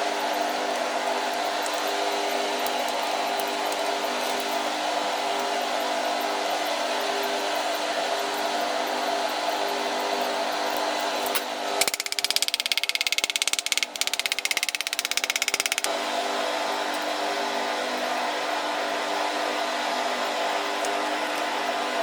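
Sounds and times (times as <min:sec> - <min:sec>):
rapidly pulsing rasp: 0:11.8 - 0:15.9.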